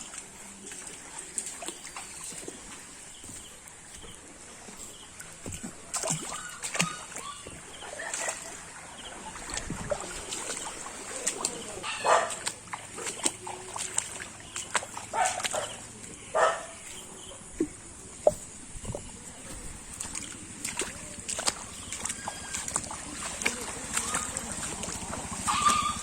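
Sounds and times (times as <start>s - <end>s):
floodwater splashing: 0.0s - 26.0s
animal call: 25.3s - 26.0s.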